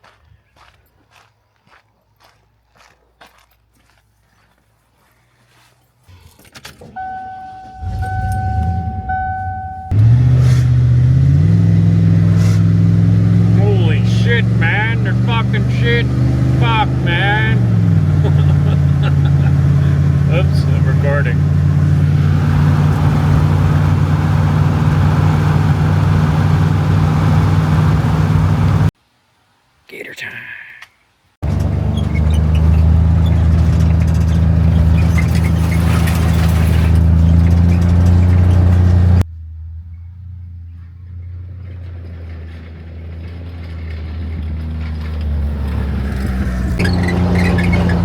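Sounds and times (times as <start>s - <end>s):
vehicle warning chime beeping: 7.0s - 10.2s
car engine idling: 7.0s - 28.9s, 31.4s - 48.0s.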